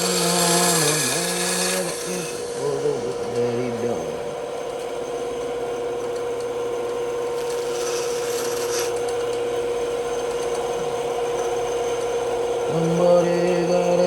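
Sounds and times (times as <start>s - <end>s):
bandsaw cutting wood: 0.0s - 4.0s, 7.4s - 9.1s.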